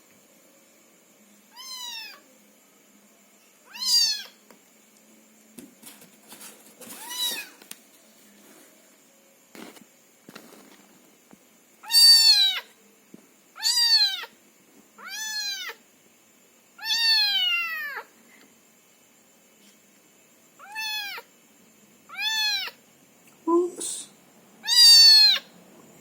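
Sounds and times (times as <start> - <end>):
kitten meowing: 1.5 - 2.2, 3.7 - 4.4, 6.9 - 7.6, 11.8 - 12.7, 13.6 - 14.3, 15.0 - 15.8, 16.8 - 18.0, 20.6 - 21.3, 22.1 - 22.8, 24.6 - 25.5.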